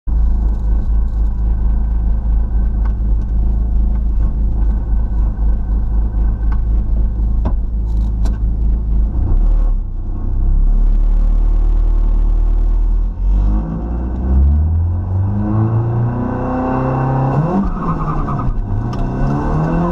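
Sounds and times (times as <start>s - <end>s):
car engine idling: 0.1s - 13.4s.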